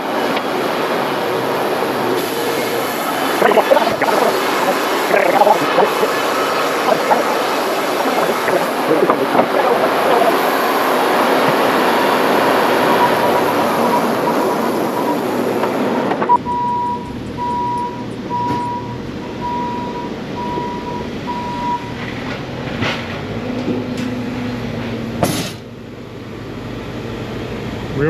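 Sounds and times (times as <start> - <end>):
sawmill running: 0.0 - 28.0
high electronic beeps: 16.3 - 21.9.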